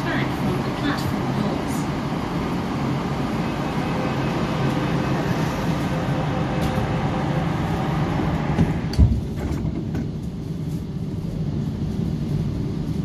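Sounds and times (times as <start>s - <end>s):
train doors closing: 0.0s - 10.3s
train carriage humming: 0.0s - 13.0s.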